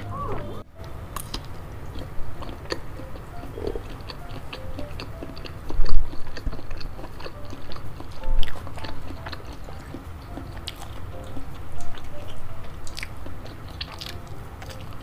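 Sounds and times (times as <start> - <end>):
close chewing of food: 0.0 - 15.0
faint background music: 0.0 - 15.0
wet mouth clicks and smacks: 1.2 - 2.1.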